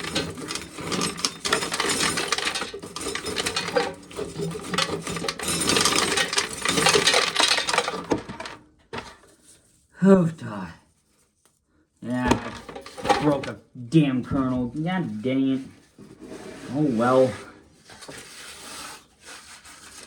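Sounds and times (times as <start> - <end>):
corn sheller clattering: 0.0 - 9.2, 12.1 - 13.6
kernels rattling into container: 0.0 - 9.2, 12.3 - 13.5.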